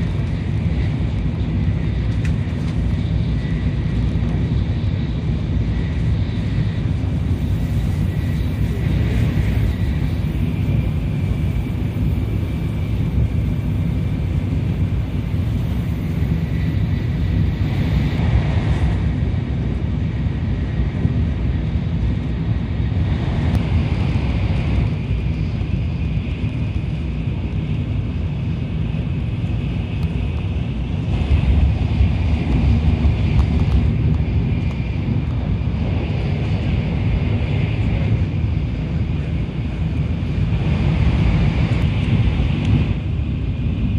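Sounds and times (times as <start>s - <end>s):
train rumble from inside cabin: 0.0s - 43.9s
faint high whine: 5.0s - 18.2s.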